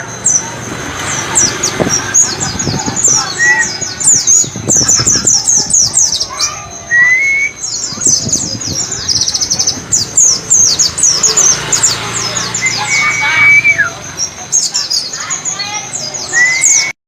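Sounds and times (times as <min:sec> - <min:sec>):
bird twittering song: 0:00.0 - 0:17.0.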